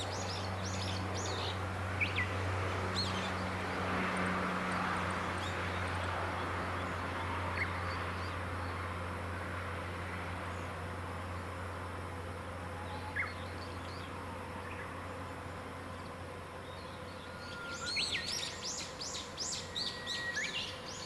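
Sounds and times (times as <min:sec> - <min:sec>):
birds chirping: 0:00.0 - 0:03.6, 0:12.2 - 0:21.0
low hum: 0:00.0 - 0:21.0.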